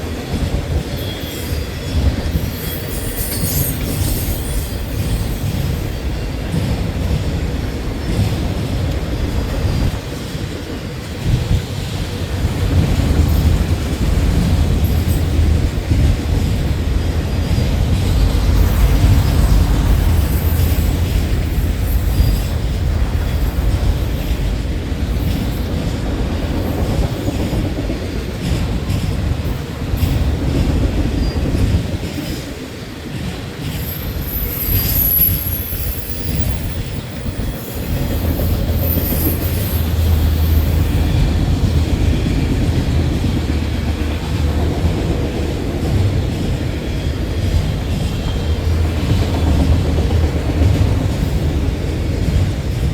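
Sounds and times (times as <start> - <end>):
freight train wheels rumbling: 0.0 - 52.9
high-pitched wheel squeal: 2.6 - 5.3.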